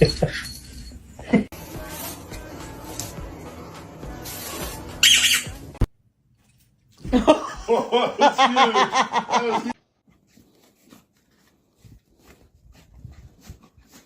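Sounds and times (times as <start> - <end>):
person laughing: 7.0 - 9.8.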